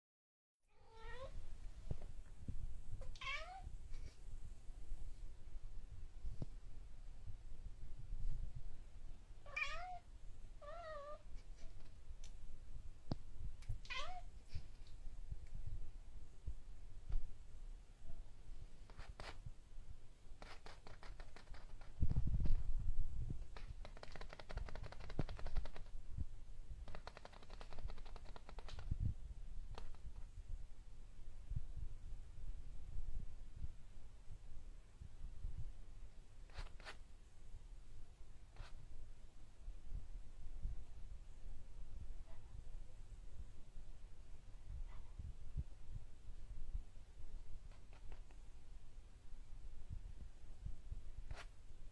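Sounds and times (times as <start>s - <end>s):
cat meowing: 0.8s - 1.4s, 3.0s - 3.7s, 9.5s - 11.2s, 13.8s - 14.3s
cat chattering clicks: 26.9s - 28.8s.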